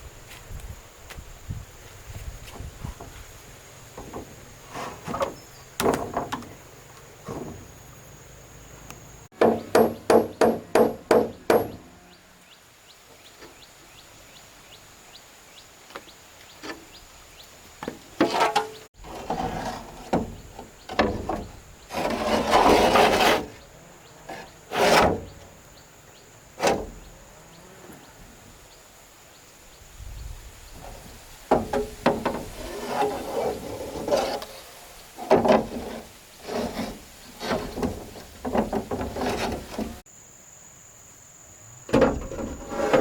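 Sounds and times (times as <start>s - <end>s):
scraping and rustling: 1.8s - 6.6s, 17.8s - 23.6s, 24.2s - 25.5s, 30.8s - 40.0s, 42.1s - 43.0s
sharp knocks on wood: 9.4s - 11.8s.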